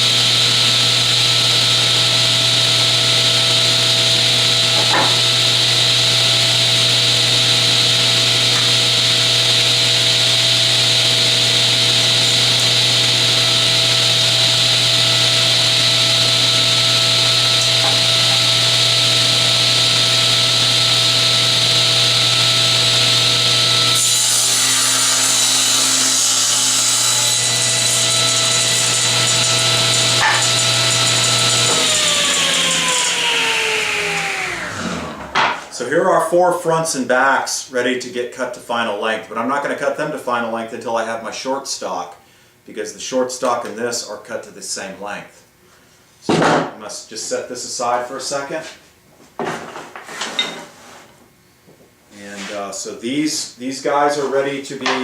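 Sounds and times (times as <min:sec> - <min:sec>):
board cut by saw blade: 0:00.0 - 0:35.8
table saw whining: 0:00.0 - 0:35.9.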